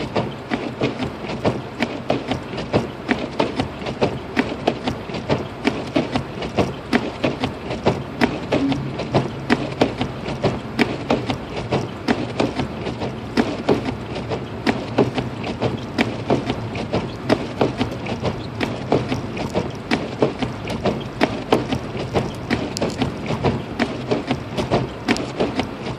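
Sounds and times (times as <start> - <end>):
car driving drone: 2.9 - 25.9
sharp irregular ticks: 14.7 - 25.7.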